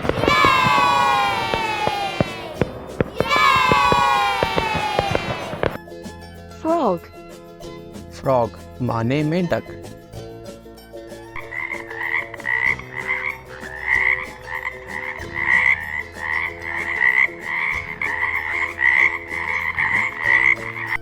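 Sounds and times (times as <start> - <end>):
frog croaking: 11.4 - 21.0.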